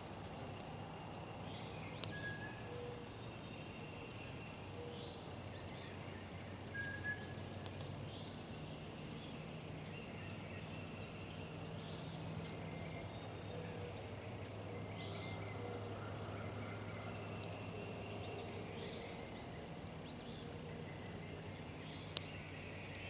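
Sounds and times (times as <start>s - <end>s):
bird calls and whistles: 1.5s - 8.4s.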